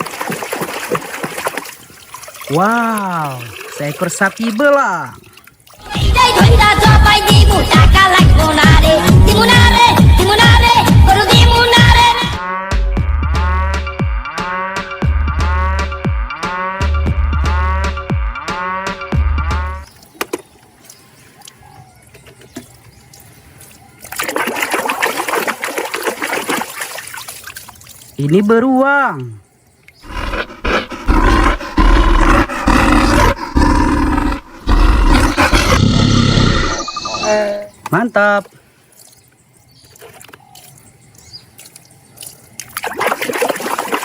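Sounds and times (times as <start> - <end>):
water running and splattering: 0.0 - 5.9, 19.8 - 30.2, 38.4 - 44.0.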